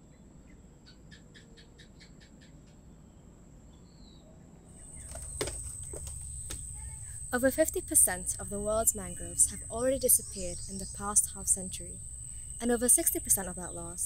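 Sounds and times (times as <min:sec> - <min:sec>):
birds chirping: 0:04.8 - 0:14.0
steady high-pitched hum: 0:04.8 - 0:14.0
sharp knocks: 0:04.9 - 0:07.2.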